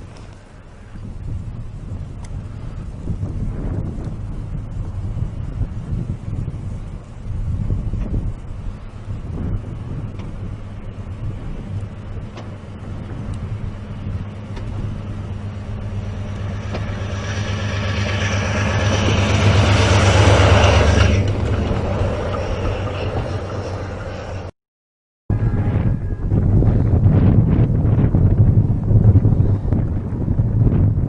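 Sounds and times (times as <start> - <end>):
rushing noise: 0.0 - 24.5
train engine drone: 0.0 - 24.5.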